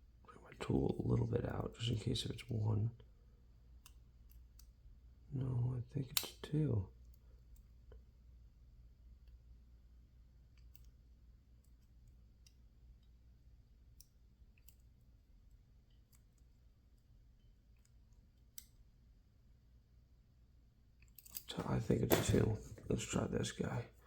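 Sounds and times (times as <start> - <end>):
lock pick metallic clicks: 21.0 - 22.4.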